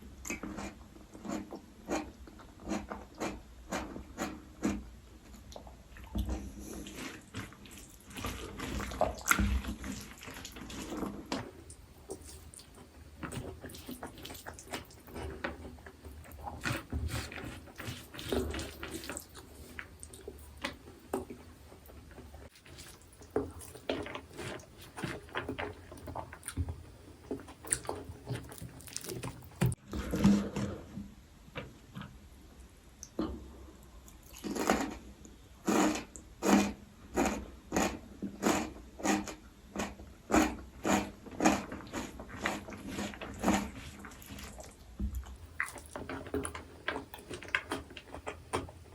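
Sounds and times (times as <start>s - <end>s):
wet chewing: 5.5s - 29.8s, 35.7s - 48.9s.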